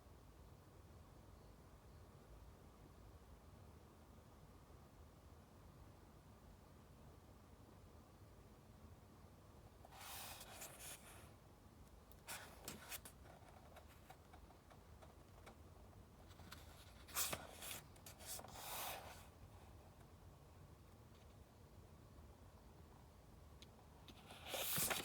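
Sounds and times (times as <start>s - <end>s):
book pages rustling: 9.9s - 11.2s, 12.2s - 15.6s, 16.3s - 19.3s, 24.1s - 25.0s.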